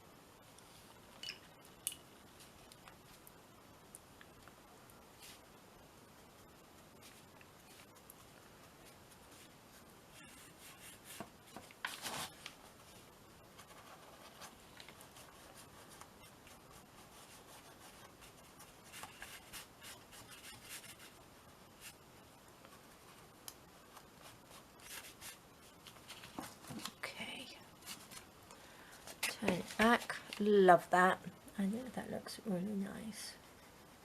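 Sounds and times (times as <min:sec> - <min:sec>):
rustling of handling: 0:06.8 - 0:21.2, 0:22.6 - 0:30.9.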